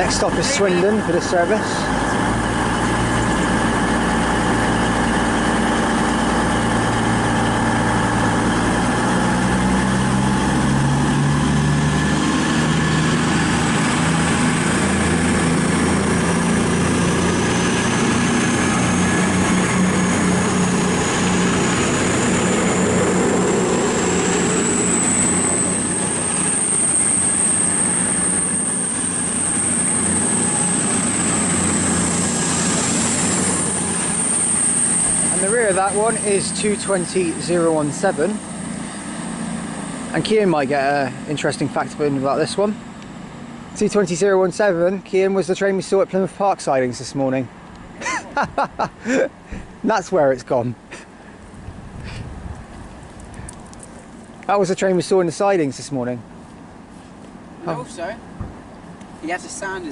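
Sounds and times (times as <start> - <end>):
high whine: 0.0 - 47.5
diesel train engines: 0.0 - 59.9.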